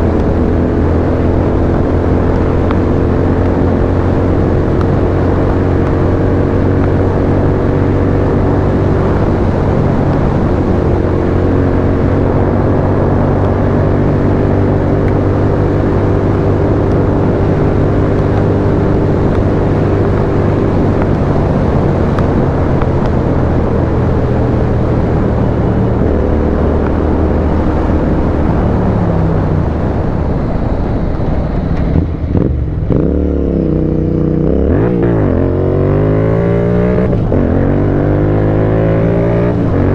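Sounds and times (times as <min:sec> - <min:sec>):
motorcycle engine revving: 0:31.8 - 0:39.9.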